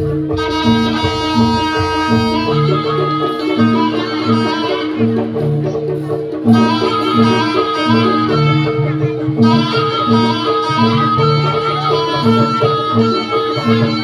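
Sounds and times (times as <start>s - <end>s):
low repeating bass notes: 0.0s - 14.0s
percussion: 0.0s - 14.0s
reedy melody: 0.0s - 14.0s.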